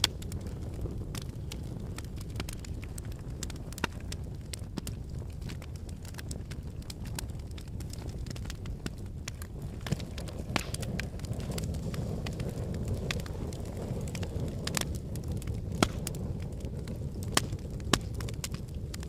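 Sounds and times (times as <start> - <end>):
fire crackles and pops: 0.0 - 19.0
logs burning in fireplace: 0.0 - 19.0
loud wood snaps: 2.0 - 11.6, 15.7 - 16.2, 17.3 - 19.0.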